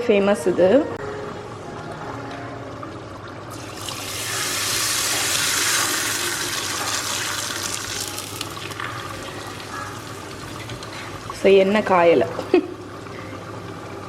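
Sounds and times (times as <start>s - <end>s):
food sizzling in oil: 3.5s - 12.3s.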